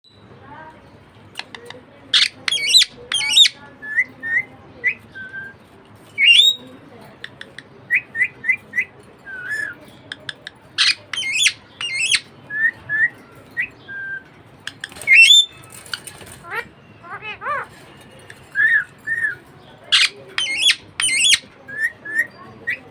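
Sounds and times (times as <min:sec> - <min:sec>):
budgerigar chirping and whistling: 0:02.2 - 0:05.5, 0:06.2 - 0:06.6, 0:10.8 - 0:16.1, 0:18.6 - 0:22.9
budgerigar squawks: 0:10.8 - 0:12.3, 0:19.9 - 0:22.8.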